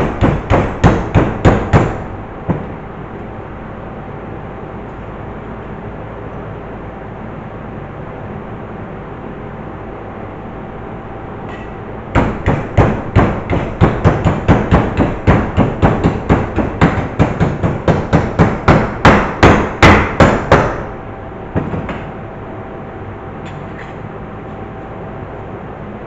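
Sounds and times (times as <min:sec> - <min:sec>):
hammer striking metal: 0:00.0 - 0:02.7, 0:11.5 - 0:20.9.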